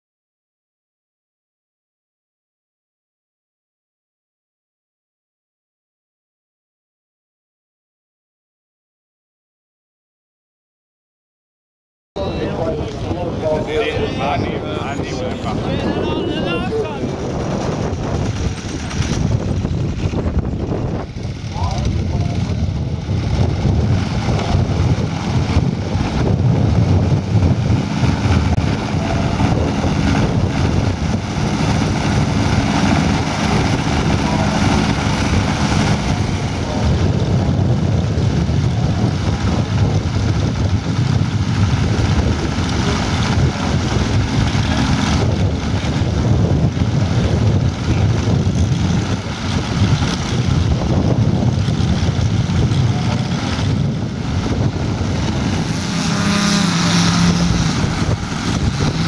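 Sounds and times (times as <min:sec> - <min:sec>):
model airplane engines running: 0:12.2 - 0:59.0.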